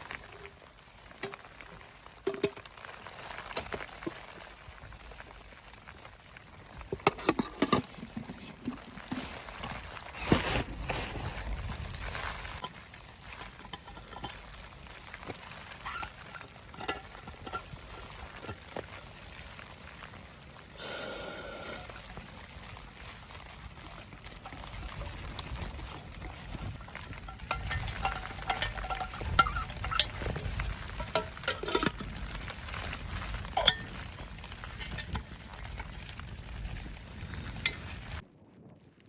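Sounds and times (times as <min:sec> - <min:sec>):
metal utensil scraping and clinking: 0:06.9 - 0:09.4, 0:13.4 - 0:14.6, 0:15.8 - 0:18.8, 0:24.4 - 0:32.2, 0:33.5 - 0:34.0, 0:34.7 - 0:35.2
food sizzling in a pan: 0:12.3 - 0:38.2.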